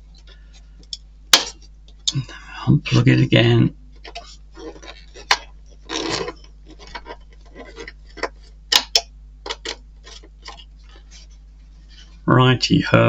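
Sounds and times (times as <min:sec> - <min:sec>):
plastic parts clicking and rustling: 0:04.0 - 0:11.2.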